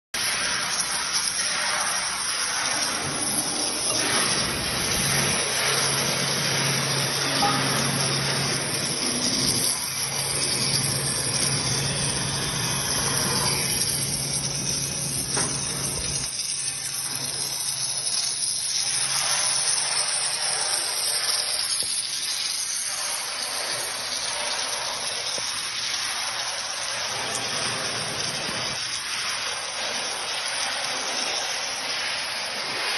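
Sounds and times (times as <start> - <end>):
welding arc hissing: 0.2 - 32.9.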